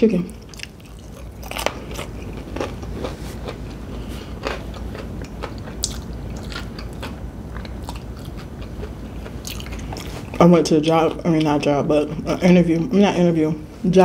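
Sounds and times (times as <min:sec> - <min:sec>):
crunching fried chicken: 0:00.4 - 0:10.5.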